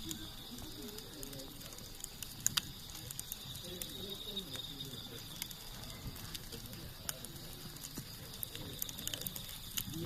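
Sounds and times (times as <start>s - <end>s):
campfire crackling and popping: 0.0s - 10.0s
faint low voices: 0.0s - 10.0s.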